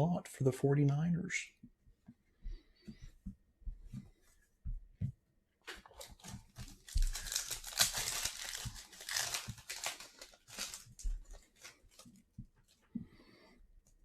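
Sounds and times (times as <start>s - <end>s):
plastic wrapper tearing and crinkling: 5.7s - 12.2s.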